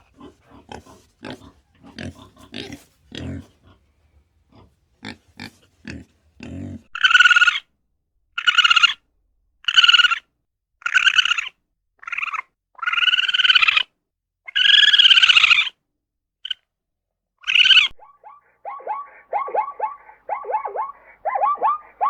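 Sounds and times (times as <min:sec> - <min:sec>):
animal low grunts: 0:00.0 - 0:03.8, 0:04.5 - 0:06.9
animal high-pitched calls: 0:07.0 - 0:07.6, 0:08.4 - 0:09.0, 0:09.6 - 0:10.2, 0:10.8 - 0:13.9, 0:14.5 - 0:15.8, 0:17.4 - 0:22.0.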